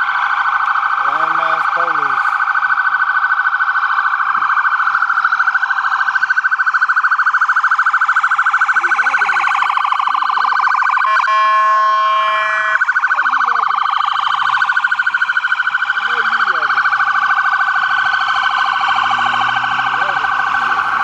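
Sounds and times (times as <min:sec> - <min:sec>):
police siren fast warble: 0:00.0 - 0:21.0
blaring horn tone: 0:10.9 - 0:13.0, 0:18.2 - 0:21.0.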